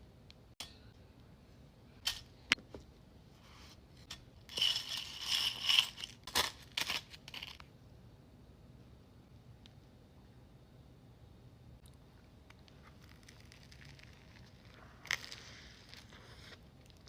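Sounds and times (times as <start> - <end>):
close crunching and crackling: 11.8 - 17.0.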